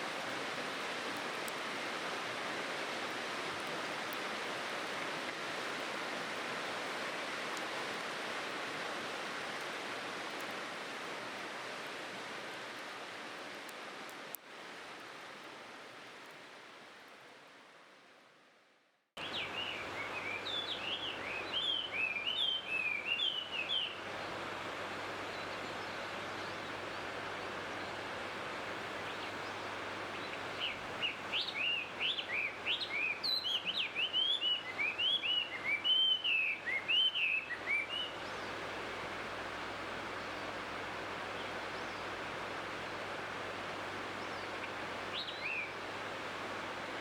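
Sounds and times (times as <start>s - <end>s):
songbird chirping: 19.2s - 28.1s, 28.9s - 38.6s, 44.0s - 45.8s.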